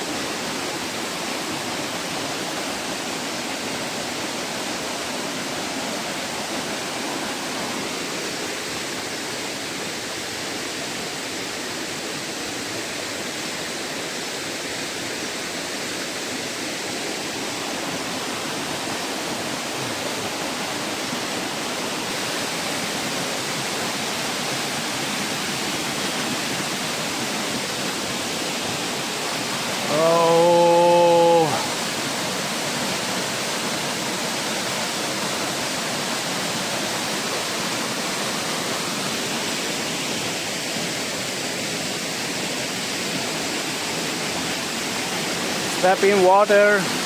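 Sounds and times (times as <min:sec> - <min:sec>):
stream and waterfall rushing: 0:00.0 - 0:47.0
loud voice-like hum: 0:29.8 - 0:31.7.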